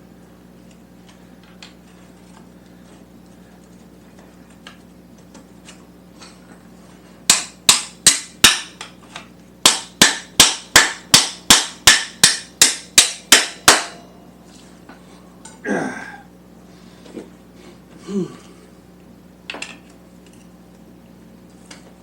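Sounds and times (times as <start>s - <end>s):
hammer striking metal bolt: 9.7s - 14.0s.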